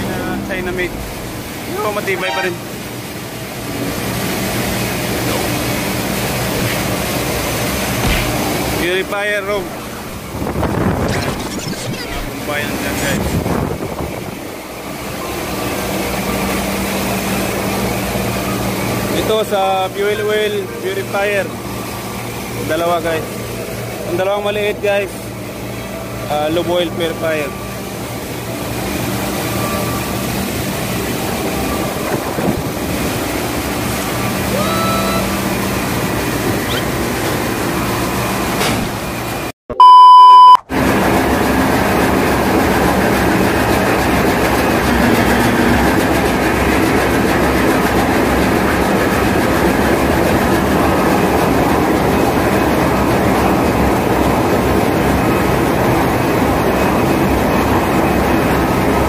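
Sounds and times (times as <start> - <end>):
engine-room machinery drone: 0.0 - 39.8, 40.5 - 59.0
loud electronic beep: 2.1 - 2.7, 39.7 - 40.7.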